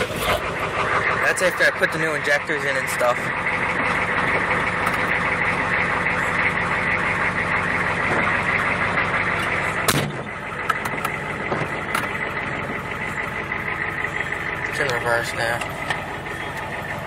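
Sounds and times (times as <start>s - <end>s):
diesel engine idling: 0.0s - 17.0s
sharp clunk: 9.9s - 10.3s.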